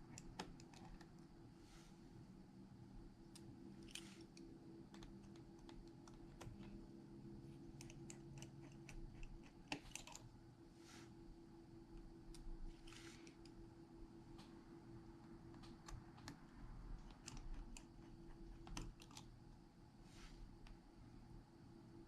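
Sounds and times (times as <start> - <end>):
steady low hum: 0.0 - 22.0
soft rustles: 12.7 - 13.4.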